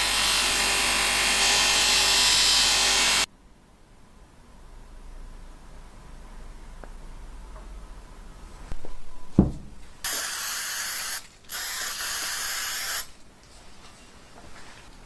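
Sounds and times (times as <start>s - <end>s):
knock: 9.4s - 9.8s.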